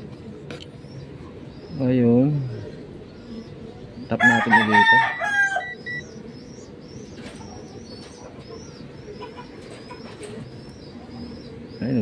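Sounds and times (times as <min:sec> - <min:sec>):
high bird chirps: 0:04.1 - 0:09.2
long bird call: 0:04.2 - 0:11.9.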